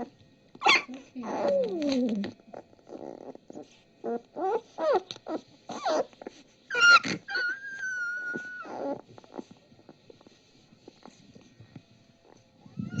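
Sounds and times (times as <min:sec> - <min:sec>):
puppy high squeal: 0:00.6 - 0:01.8, 0:04.1 - 0:06.1, 0:06.7 - 0:09.0
puppies whimpering: 0:00.6 - 0:09.6.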